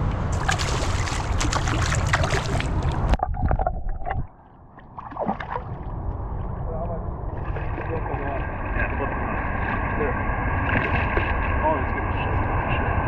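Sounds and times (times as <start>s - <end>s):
water splashing and sloshing: 0.0s - 11.6s
underwater bubbling: 0.3s - 11.5s
underwater knocks: 0.4s - 5.7s.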